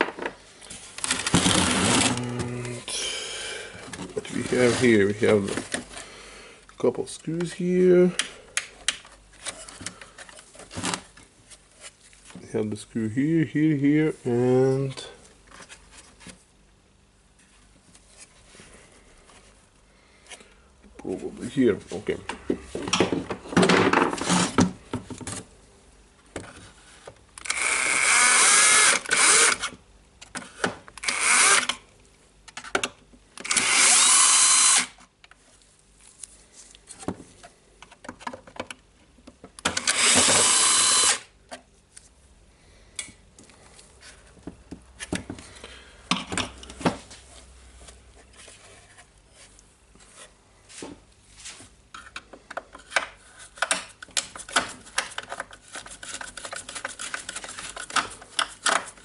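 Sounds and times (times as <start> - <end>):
power screwdriver running: 27.4 - 29.7, 31.0 - 31.8, 33.4 - 35.0, 39.7 - 41.3
small clicks and handling knocks: 36.8 - 39.8, 51.9 - 59.0.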